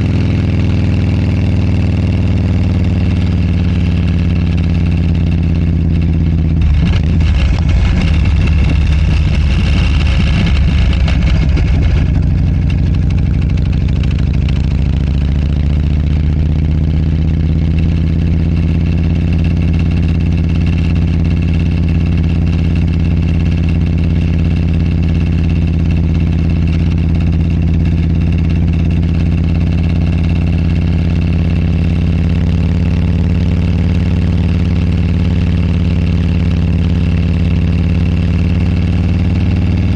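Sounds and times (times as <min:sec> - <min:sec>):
motorcycle engine running: 0:00.0 - 0:39.9
microphone clip rattling: 0:06.0 - 0:14.8.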